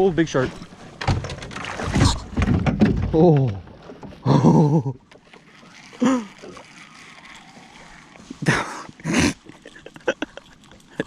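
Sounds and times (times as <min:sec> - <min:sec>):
person exclaiming: 0:06.0 - 0:06.5.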